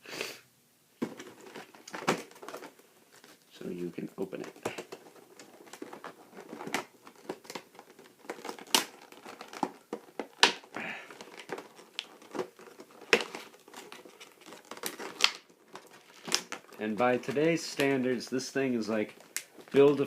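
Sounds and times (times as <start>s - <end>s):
cardboard cracking and snapping: 1.0s - 3.4s, 4.4s - 20.0s
cardboard packaging crinkling: 1.0s - 20.0s.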